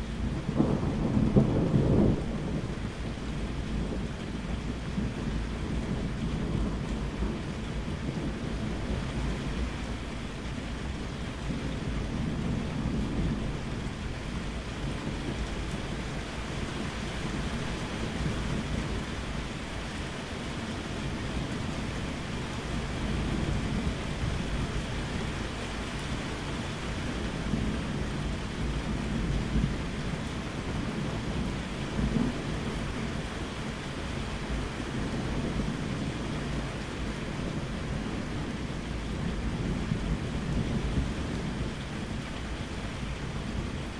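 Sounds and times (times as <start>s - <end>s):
rolling thunder: 0.0s - 19.4s, 20.7s - 43.9s.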